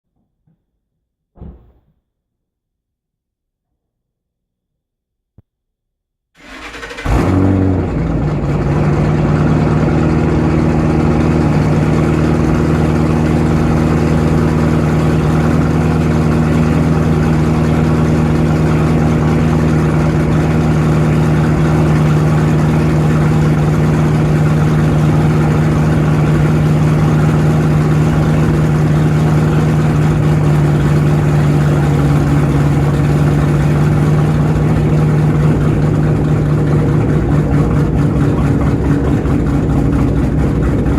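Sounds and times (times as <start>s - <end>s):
car engine starting and idling: 6.4s - 40.9s.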